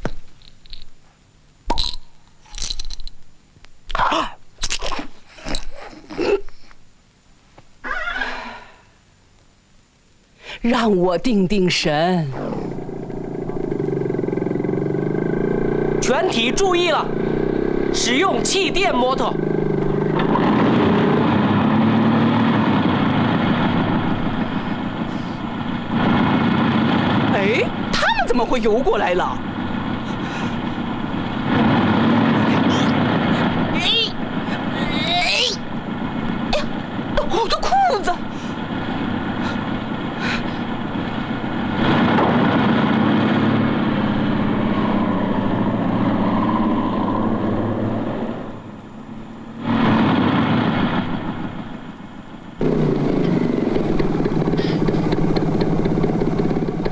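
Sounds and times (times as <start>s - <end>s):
engine drone: 12.3s - 56.9s
cartoon engine buzz: 29.2s - 36.9s, 52.6s - 55.6s.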